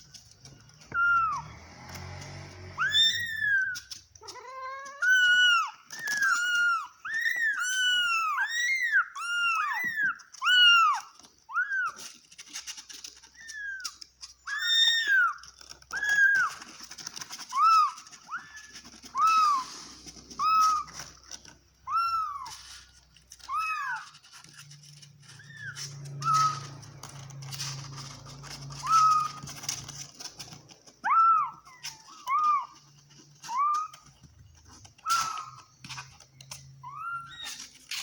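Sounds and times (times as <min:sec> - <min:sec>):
cat meowing: 0:00.9 - 0:30.2.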